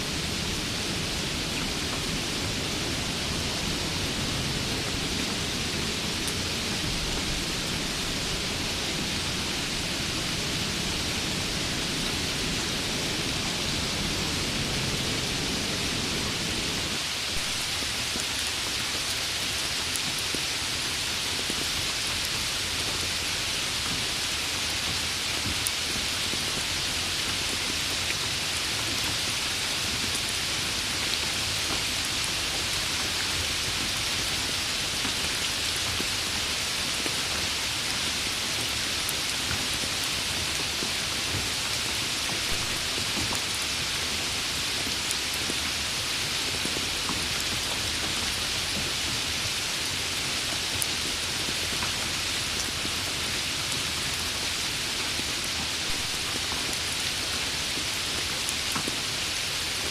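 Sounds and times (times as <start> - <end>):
rain hiss on a surface: 0.0 - 59.9.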